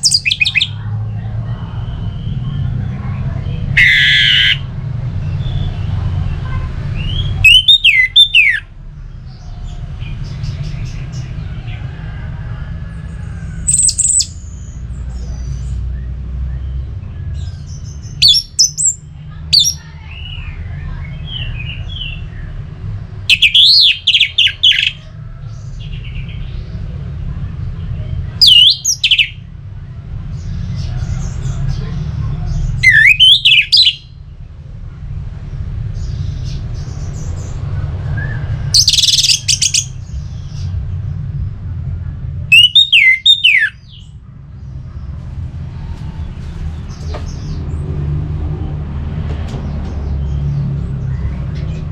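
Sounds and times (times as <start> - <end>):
thrush singing: 0.0 - 16.2
bird whistled notes: 3.8 - 4.6, 42.5 - 43.8
low rumble: 8.7 - 23.3, 34.1 - 42.5, 43.8 - 51.9.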